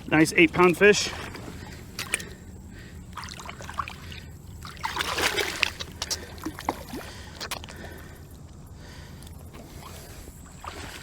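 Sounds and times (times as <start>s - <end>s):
water sloshing and trickling: 0.0s - 11.0s
fish splashing in water: 1.1s - 7.8s.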